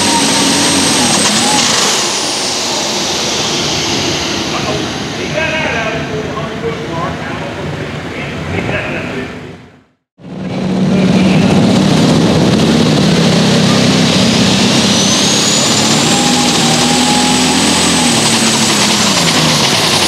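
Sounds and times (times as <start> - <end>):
high turbo whistle: 0.0 - 5.5, 11.0 - 20.0
tractor diesel engine running hard: 0.0 - 7.9, 10.2 - 20.0.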